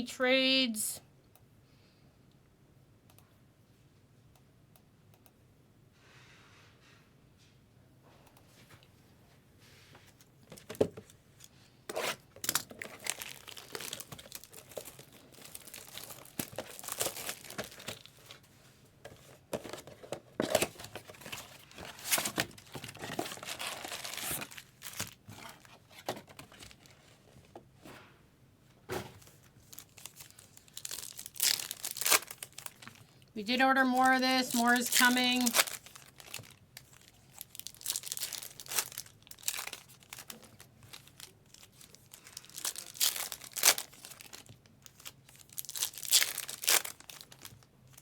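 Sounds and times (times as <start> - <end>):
plastic wrapping crinkling and tearing: 10.5 - 18.5, 19.2 - 27.1, 29.2 - 48.0
plastic wrap snapping: 12.4 - 18.4, 29.7 - 33.0, 34.8 - 48.0.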